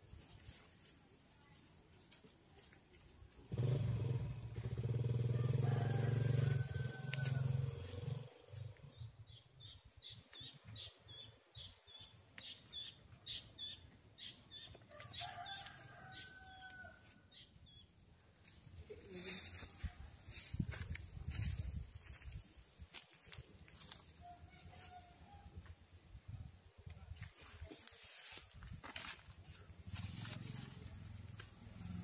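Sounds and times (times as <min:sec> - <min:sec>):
bird chirping: 0:08.9 - 0:14.8.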